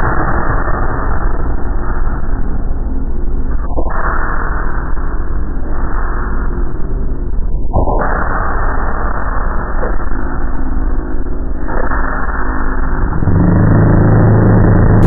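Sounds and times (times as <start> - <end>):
motorcycle engine running: 13.0 - 15.0.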